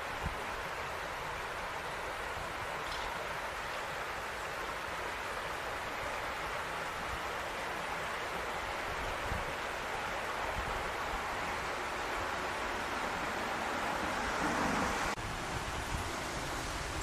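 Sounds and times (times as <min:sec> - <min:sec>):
outdoor ambience after rain: 0:00.0 - 0:17.0.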